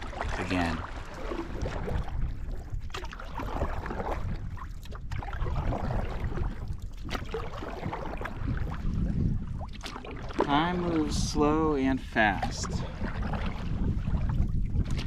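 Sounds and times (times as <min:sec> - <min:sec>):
paddle strokes splashing: 0:00.0 - 0:15.0
wind rumble on microphone: 0:00.0 - 0:15.0.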